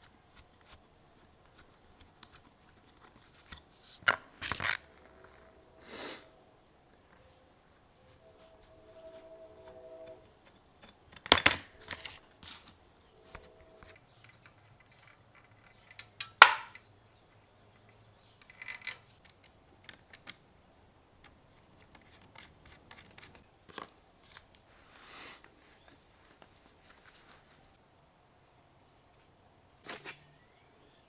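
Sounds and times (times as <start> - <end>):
metal tools knocking and clinking: 14.2 - 17.0
ringing metal clink: 15.6 - 17.0.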